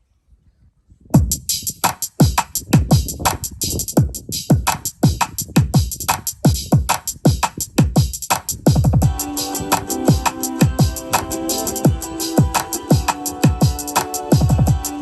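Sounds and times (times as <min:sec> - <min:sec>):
bright high percussion: 0:09.0 - 0:15.0
electronic music through speaker: 0:09.0 - 0:15.0
deep kick drum hits: 0:14.4 - 0:14.8.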